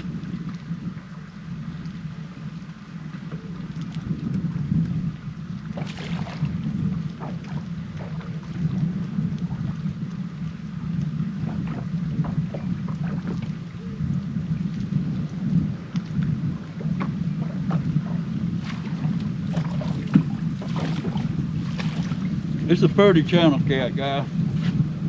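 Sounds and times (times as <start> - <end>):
wind rumble on microphone: 0.0 - 25.0.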